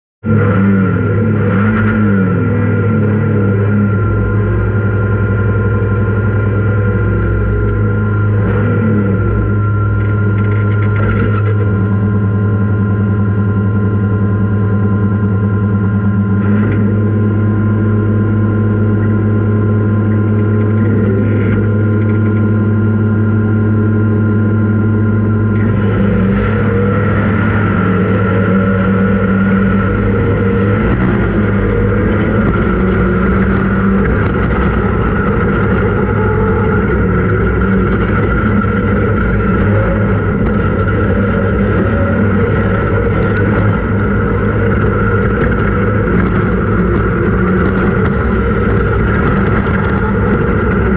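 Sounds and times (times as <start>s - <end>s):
race vehicle engine running: 0.2s - 50.9s
broad rushing noise: 25.6s - 50.9s.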